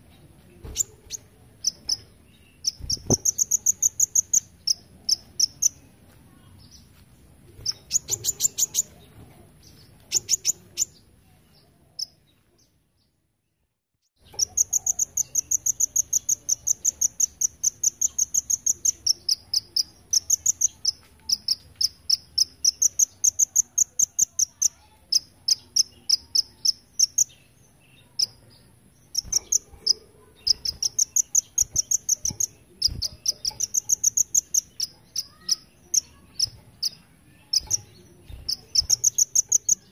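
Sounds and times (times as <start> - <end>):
sunbird singing rapid high chips: 0.8 - 5.8, 10.1 - 11.0, 14.2 - 28.4, 29.0 - 39.9.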